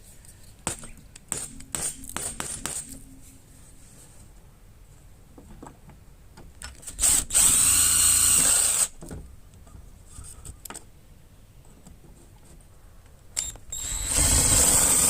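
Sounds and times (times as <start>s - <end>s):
power drill running: 7.0s - 8.9s, 13.7s - 15.0s.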